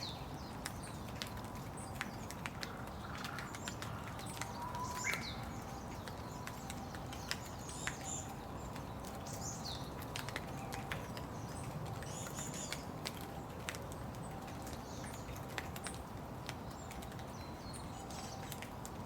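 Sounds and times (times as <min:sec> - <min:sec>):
rain pattering: 0:00.0 - 0:19.0
bird chirps: 0:02.9 - 0:09.9.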